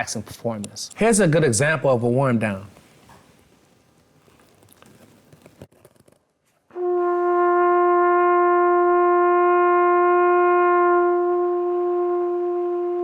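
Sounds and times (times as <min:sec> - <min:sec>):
trumpet holding long note: 0:06.8 - 0:13.0.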